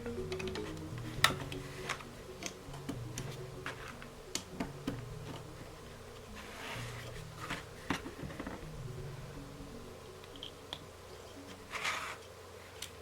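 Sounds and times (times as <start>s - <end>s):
soft rustle: 5.6s - 8.7s, 11.2s - 13.0s.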